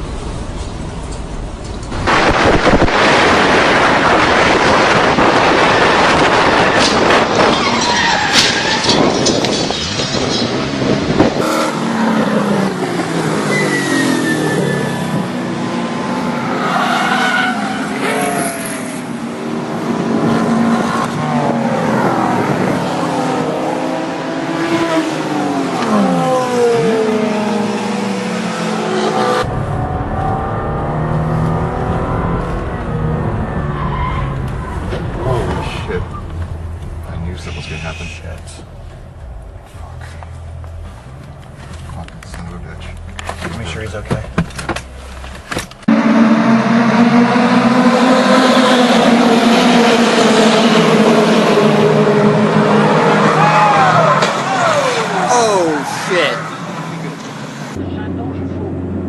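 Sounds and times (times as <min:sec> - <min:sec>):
racing car engines passing: 0:02.1 - 0:44.0, 0:45.8 - 0:59.0
tyre squeal: 0:07.5 - 0:10.8, 0:13.4 - 0:15.2.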